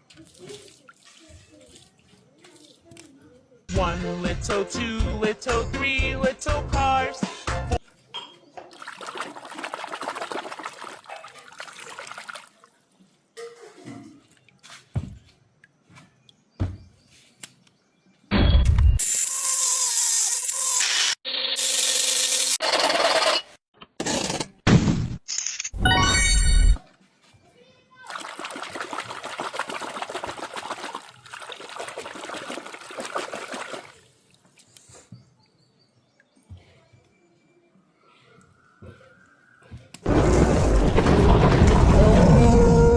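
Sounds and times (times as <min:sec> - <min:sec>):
water running: 0:08.7 - 0:12.7, 0:28.1 - 0:34.6.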